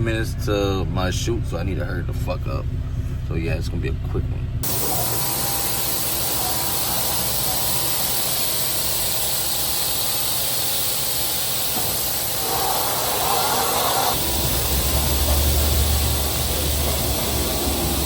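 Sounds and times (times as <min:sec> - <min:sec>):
water jets spraying car: 0:04.6 - 0:18.0.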